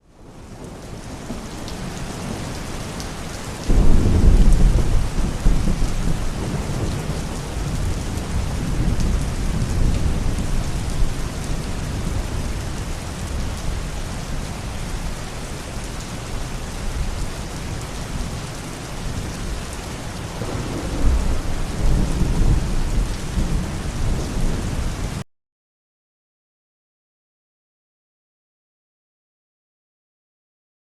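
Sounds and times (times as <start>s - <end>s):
heavy rain falling: 0.0s - 25.2s
thunder crack and rumble: 3.6s - 13.8s, 20.3s - 25.2s.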